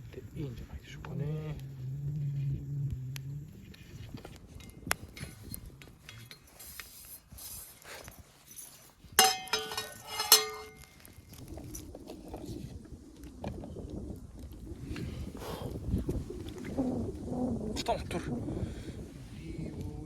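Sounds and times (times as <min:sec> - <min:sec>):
metal cooking gear clanking: 0:09.2 - 0:11.0.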